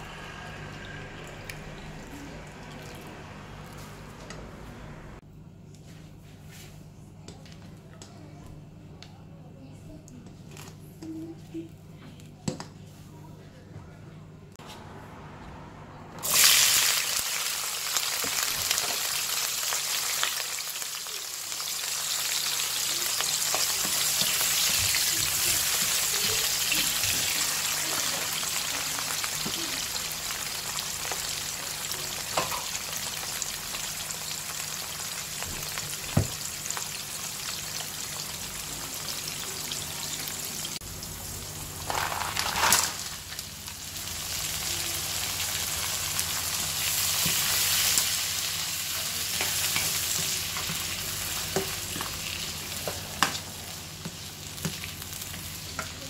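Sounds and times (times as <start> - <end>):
onion sizzling in hot oil: 16.2 - 56.0
vegetables sizzling in pan: 16.2 - 56.0.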